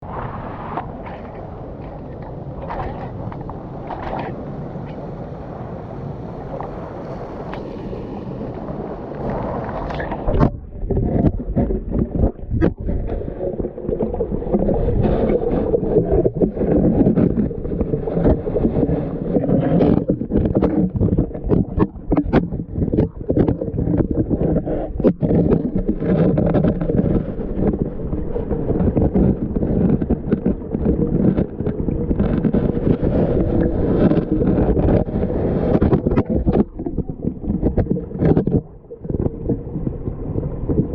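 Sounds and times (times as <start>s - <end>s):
river water sloshing and gurgling: 0.0s - 40.9s.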